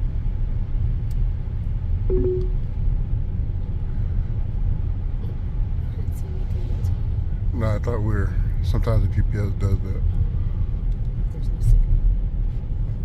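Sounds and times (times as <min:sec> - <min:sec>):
car engine and tyres rumbling: 0:00.0 - 0:13.0
short tone: 0:02.1 - 0:02.7.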